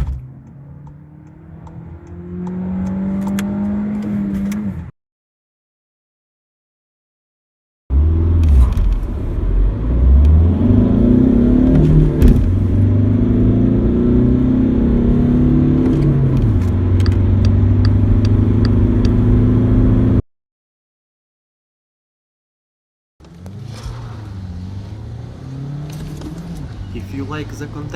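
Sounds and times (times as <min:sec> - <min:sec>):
car engine accelerating: 0:00.0 - 0:04.9, 0:07.9 - 0:20.2, 0:23.2 - 0:27.9.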